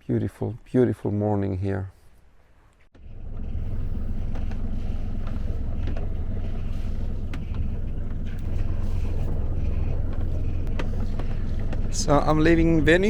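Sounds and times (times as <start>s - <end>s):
boat engine running: 3.0s - 13.0s.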